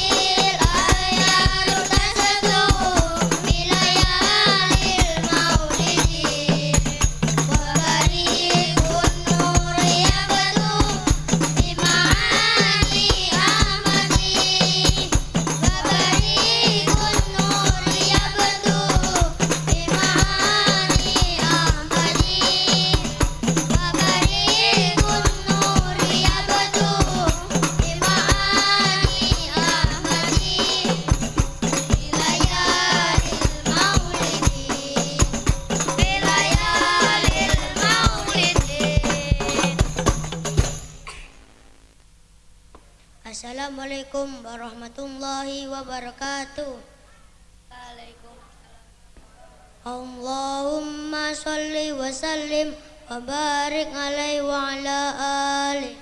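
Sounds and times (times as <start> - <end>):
person singing devotional song: 0.0 - 40.8, 49.8 - 56.0
hand percussion with jingles: 0.0 - 41.0.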